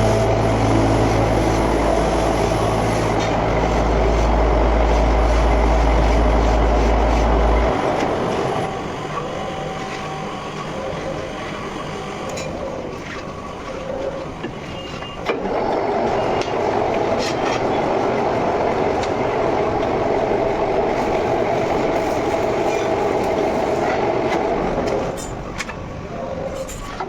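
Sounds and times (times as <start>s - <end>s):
machining noise: 0.0s - 12.2s.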